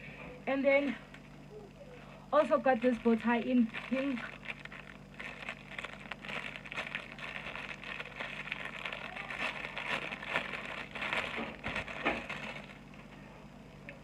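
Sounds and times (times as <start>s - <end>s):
faint steady hum: 0.0s - 14.0s
plastic packaging crinkling: 2.6s - 13.1s.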